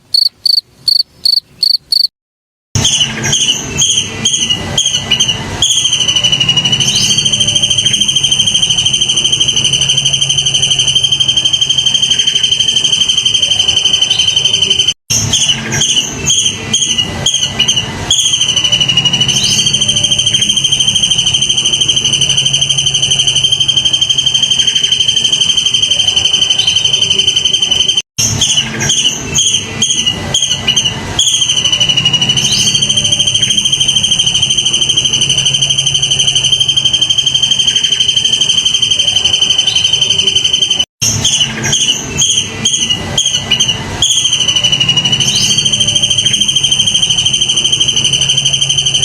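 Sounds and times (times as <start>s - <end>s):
high insect trill: 0.1s - 2.1s.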